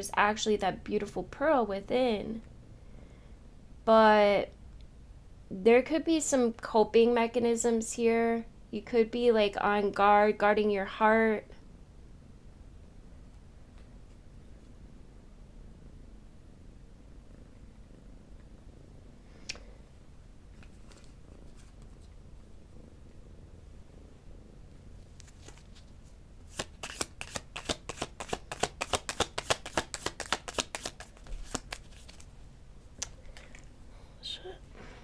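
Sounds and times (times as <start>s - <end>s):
cards being shuffled: 20.6s - 22.1s, 25.2s - 32.4s.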